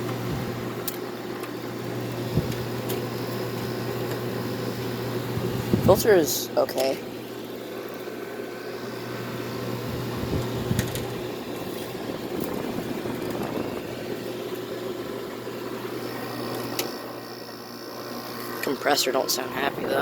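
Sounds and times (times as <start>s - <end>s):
blower air rushing: 0.0s - 0.8s, 1.8s - 2.8s, 3.4s - 6.2s, 8.2s - 18.6s
air conditioner humming: 0.0s - 20.0s.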